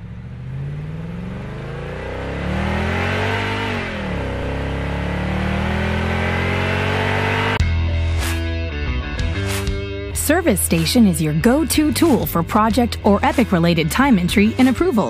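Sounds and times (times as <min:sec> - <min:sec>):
car engine accelerating: 0:00.0 - 0:07.6.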